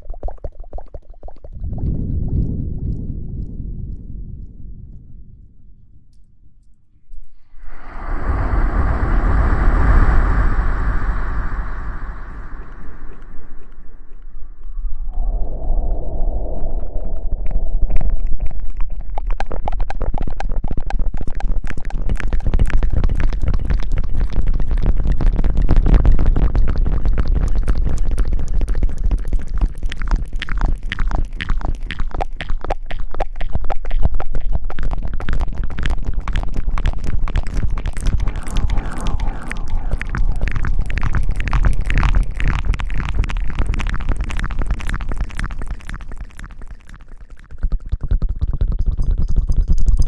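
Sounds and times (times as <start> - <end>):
heavy low rumble: 1.5 - 18.8, 35.7 - 47.0.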